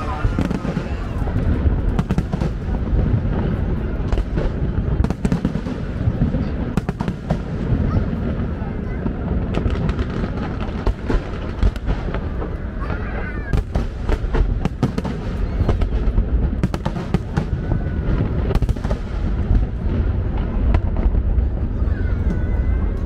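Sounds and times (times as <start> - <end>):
crackling firework pops: 4.0 - 8.0, 9.0 - 21.3.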